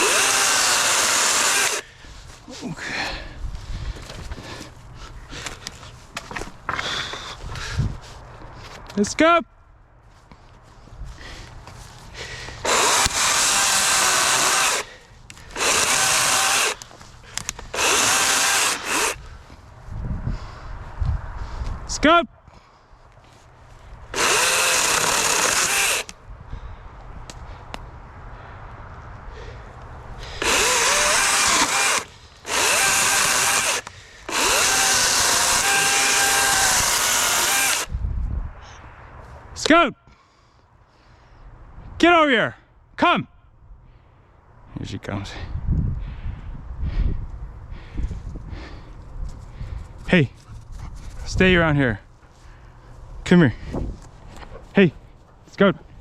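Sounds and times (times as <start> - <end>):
electric chainsaw running: 0.0 - 1.8, 12.6 - 14.9, 15.5 - 16.8, 17.7 - 19.2, 24.1 - 26.1, 30.4 - 37.9.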